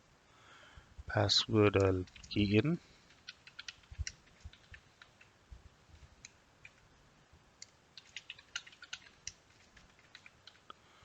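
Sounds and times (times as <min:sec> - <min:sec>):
computer keyboard keystrokes: 0:01.8 - 0:05.3, 0:06.2 - 0:06.8, 0:07.6 - 0:10.7.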